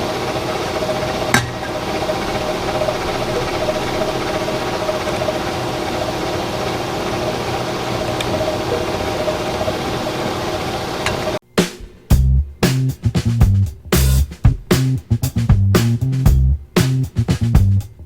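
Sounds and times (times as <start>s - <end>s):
milling machine drone and whine: 0.0s - 11.4s.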